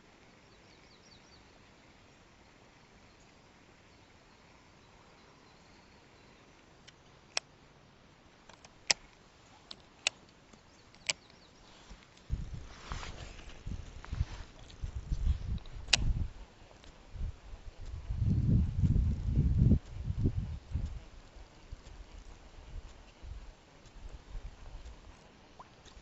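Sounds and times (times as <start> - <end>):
faint high chirping: 0.3 - 7.2.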